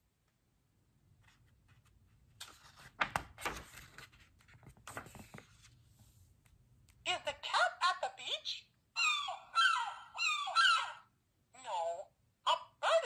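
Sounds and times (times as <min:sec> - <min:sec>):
paper rustling: 0:01.2 - 0:06.3.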